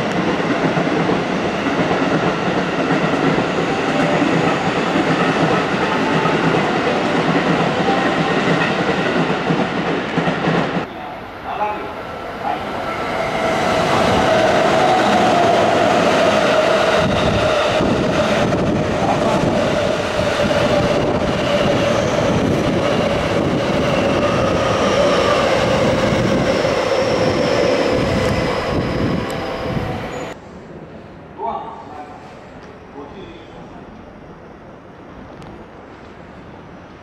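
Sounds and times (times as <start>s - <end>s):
train wheels rolling on rails: 0.0s - 10.9s, 12.4s - 30.4s.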